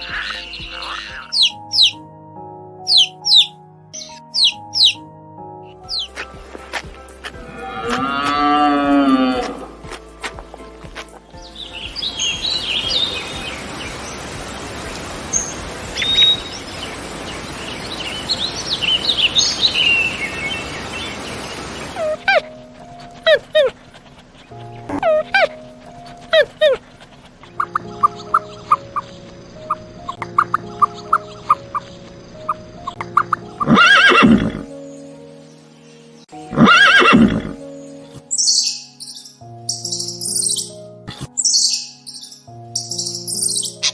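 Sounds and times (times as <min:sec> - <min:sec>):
small birds chirping: 0:00.0 - 0:02.0, 0:02.8 - 0:05.1, 0:05.7 - 0:43.9
background music: 0:00.0 - 0:43.9
horse neighing: 0:07.5 - 0:09.8, 0:33.6 - 0:34.7, 0:36.5 - 0:37.6
steady background hiss: 0:09.6 - 0:33.7.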